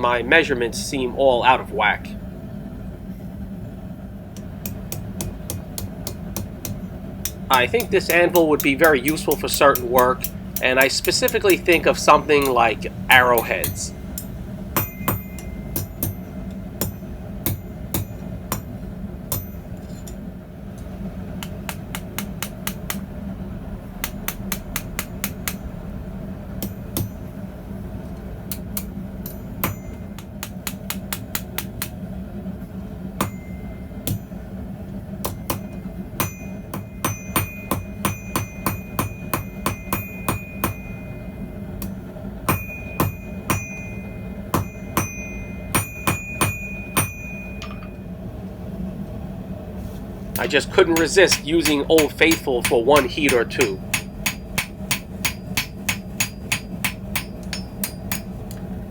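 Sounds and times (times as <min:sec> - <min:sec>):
steady low hum: 0:00.0 - 0:58.9
hammer striking steel on anvil: 0:04.4 - 0:20.3, 0:21.4 - 0:23.1, 0:24.0 - 0:25.7, 0:26.6 - 0:27.3, 0:28.5 - 0:32.0, 0:33.2 - 0:34.5, 0:35.2 - 0:48.0, 0:50.4 - 0:58.5.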